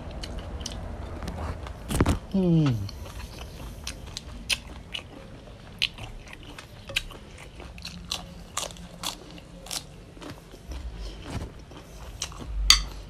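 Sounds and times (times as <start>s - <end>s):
crunchy bites and chewing: 5.7s - 12.6s.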